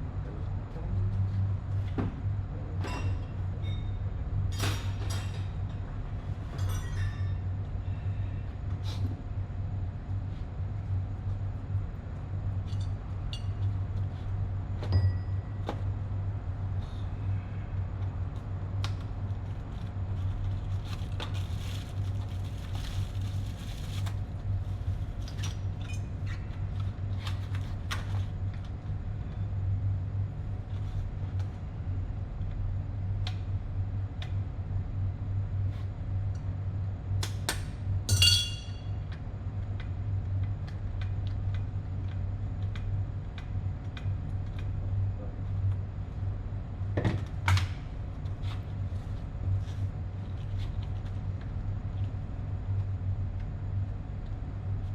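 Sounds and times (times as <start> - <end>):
sharp ringing clink: 14.9 - 15.6, 38.1 - 39.0
metal tool clinks and taps: 38.1 - 38.9.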